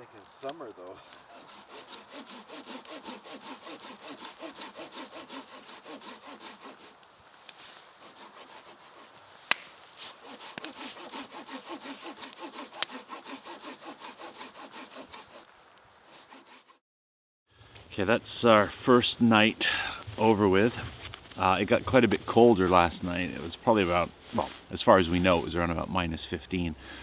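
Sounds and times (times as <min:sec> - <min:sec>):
sharp wood crack: 0:00.4 - 0:15.5
hand saw cutting wood: 0:01.1 - 0:15.5, 0:16.1 - 0:16.8, 0:18.6 - 0:25.5.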